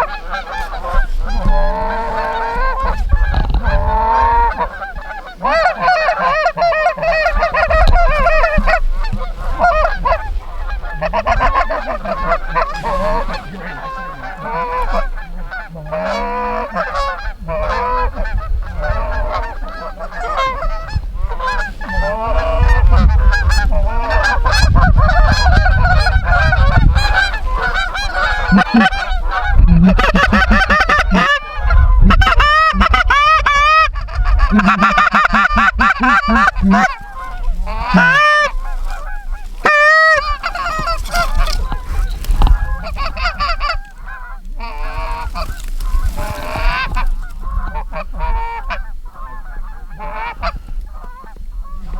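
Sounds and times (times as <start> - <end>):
geese honking: 0.0 - 51.9
wind rumbling on microphone: 0.0 - 51.9.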